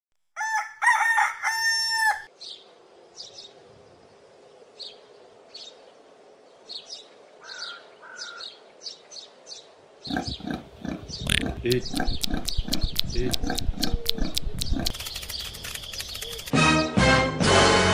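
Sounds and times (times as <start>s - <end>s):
rooster crowing: 0.4s - 2.3s
small birds chirping: 2.4s - 16.6s.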